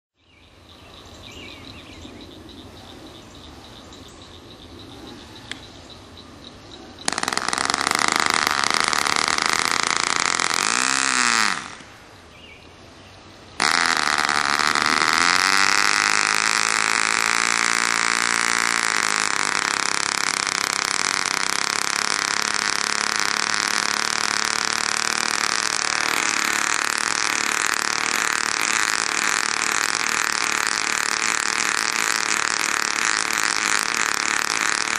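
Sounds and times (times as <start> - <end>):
model helicopter engine running: 7.0 - 12.0, 13.6 - 34.9.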